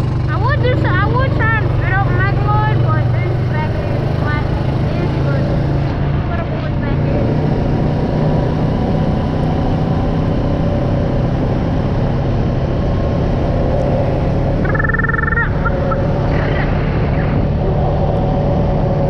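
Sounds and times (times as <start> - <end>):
vehicle engine running: 0.0 - 19.0
high warbling squeal: 14.5 - 17.5.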